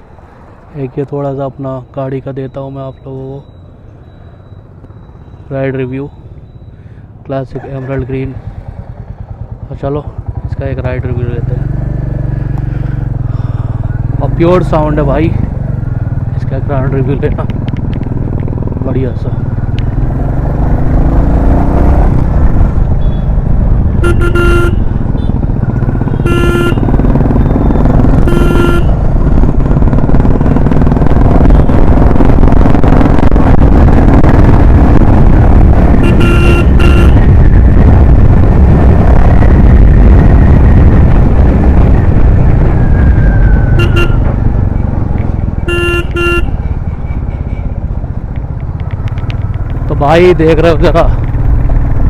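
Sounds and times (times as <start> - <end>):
motorcycle engine running: 8.4 - 52.0
short horn honks: 24.0 - 25.4, 26.1 - 26.9, 28.2 - 29.0, 36.0 - 37.2, 43.8 - 44.4, 45.6 - 47.6.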